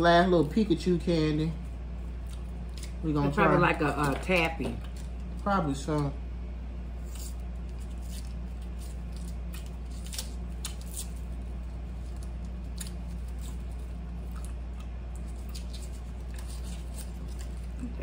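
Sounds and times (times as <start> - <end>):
steady low hum: 0.0 - 18.0
person chewing candy: 8.7 - 18.0.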